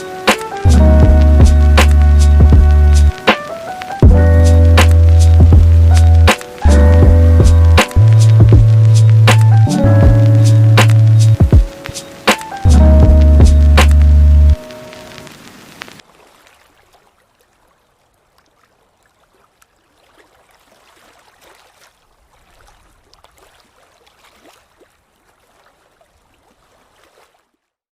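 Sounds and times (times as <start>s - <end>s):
faint trickling water: 0.0s - 27.8s
small water drips: 13.8s - 27.7s.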